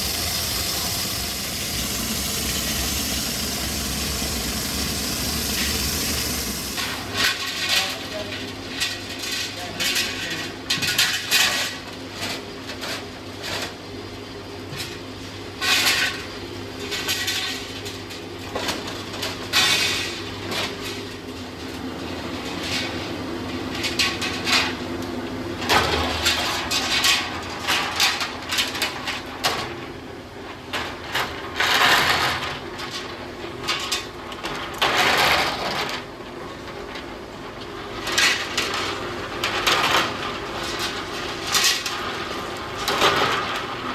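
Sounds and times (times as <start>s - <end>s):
short noisy bursts: 0.0s - 7.1s
factory machinery hum: 0.0s - 7.5s.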